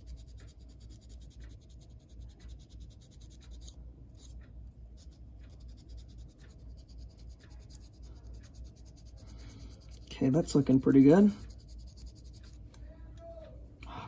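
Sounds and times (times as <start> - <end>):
faint scratching of scrubbing pad: 5.0 - 12.6.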